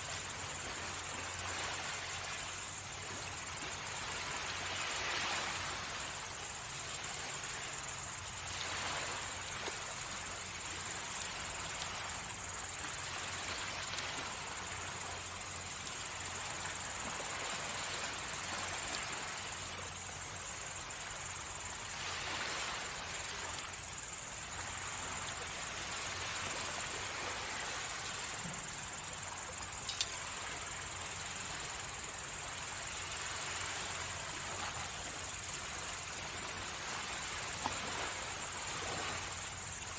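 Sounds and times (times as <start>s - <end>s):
insects chirring: 0.0s - 39.9s
sea waves washing ashore: 0.0s - 39.9s
faint sharp clicks: 29.6s - 30.2s.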